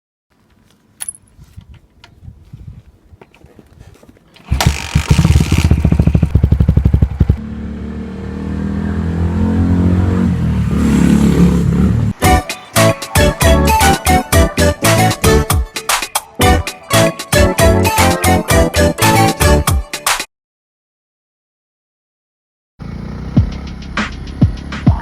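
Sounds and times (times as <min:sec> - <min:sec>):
motorcycle engine starting and running: 0:04.4 - 0:17.0, 0:22.8 - 0:25.0.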